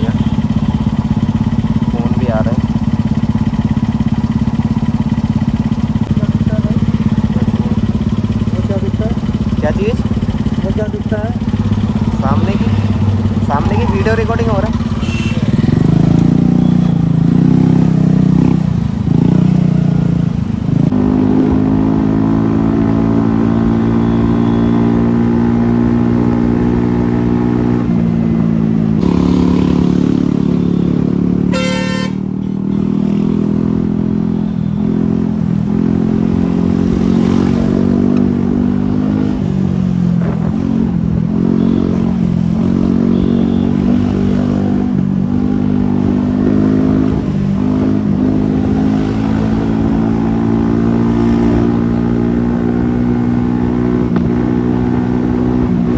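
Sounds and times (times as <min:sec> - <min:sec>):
motorcycle engine running: 0:00.0 - 0:55.9
vehicle horn honk: 0:14.9 - 0:15.8, 0:23.8 - 0:24.8, 0:31.5 - 0:33.2, 0:43.0 - 0:44.0.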